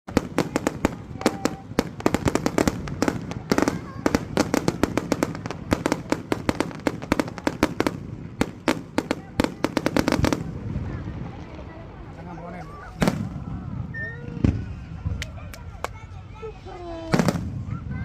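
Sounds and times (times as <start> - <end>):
fireworks bangs and crackles: 0.1 - 16.1, 17.0 - 18.0.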